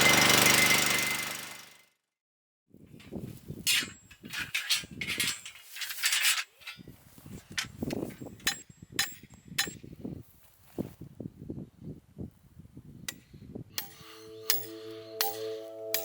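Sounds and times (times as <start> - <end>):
scraping noises: 3.7 - 7.7.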